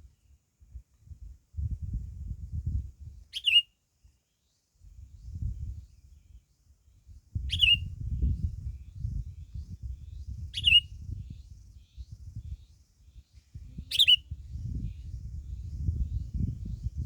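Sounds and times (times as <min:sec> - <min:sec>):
songbird sharp downward calls: 0:03.3 - 0:03.7, 0:07.5 - 0:07.9, 0:10.6 - 0:11.0, 0:13.9 - 0:14.3.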